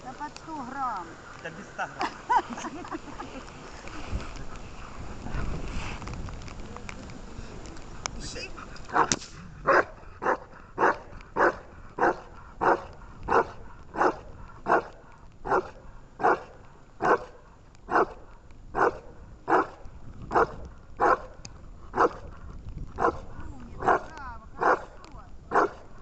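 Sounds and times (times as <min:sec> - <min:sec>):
dog barking: 0:08.9 - 0:18.2, 0:18.8 - 0:21.4, 0:22.0 - 0:22.3, 0:23.0 - 0:25.9.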